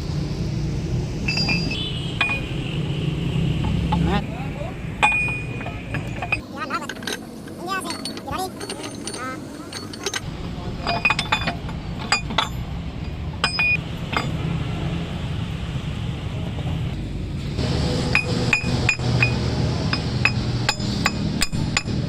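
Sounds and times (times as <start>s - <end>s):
metal tools clinking: 1.3s - 2.5s, 5.0s - 14.4s.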